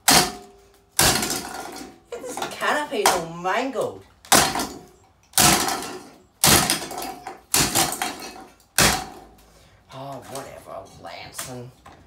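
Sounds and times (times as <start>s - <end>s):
ceiling fan being smashed: 0.0s - 3.3s, 4.2s - 9.5s.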